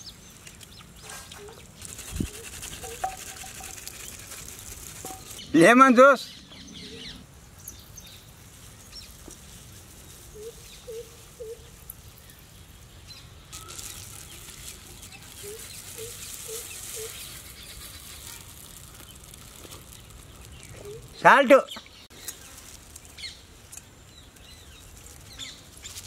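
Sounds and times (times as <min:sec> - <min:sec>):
bird calling: 0:01.0 - 0:07.2, 0:10.3 - 0:11.7, 0:15.0 - 0:19.1, 0:20.1 - 0:22.1.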